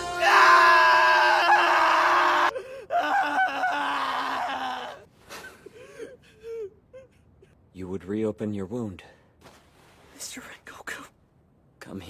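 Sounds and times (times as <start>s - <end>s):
man screaming in anguish: 0.0s - 5.0s
man gasping sobs: 2.5s - 3.1s, 5.3s - 7.6s.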